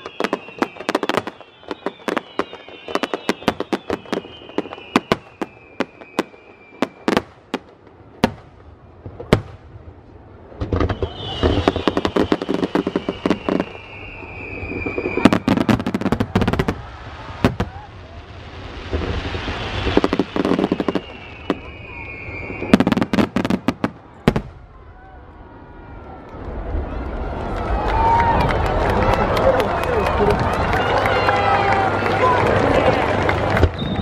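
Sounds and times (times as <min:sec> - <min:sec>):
fireworks whistling: 0:00.0 - 0:08.5, 0:10.6 - 0:24.8, 0:33.5 - 0:34.0
fireworks bangs and crackles: 0:00.0 - 0:34.0.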